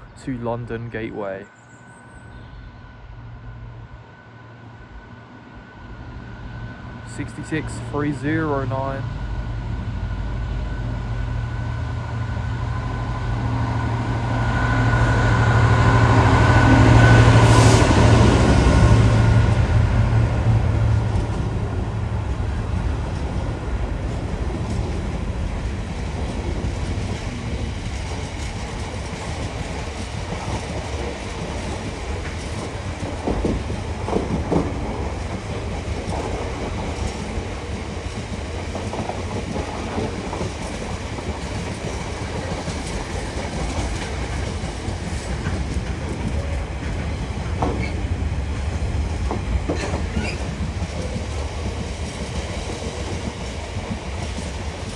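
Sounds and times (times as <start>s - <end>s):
freight wagons rumbling: 14.0s - 54.9s
wheels clacking over rail joints: 16.1s - 54.9s
knocks and clanks: 45.4s - 48.0s.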